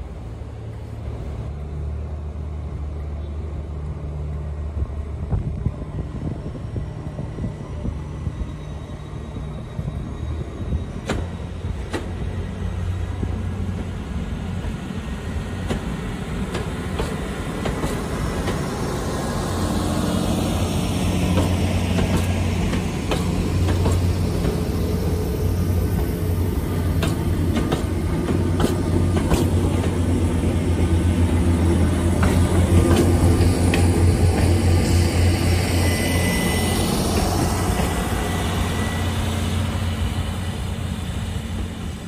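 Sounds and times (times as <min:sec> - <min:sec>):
train engine drone: 0:00.0 - 0:42.0.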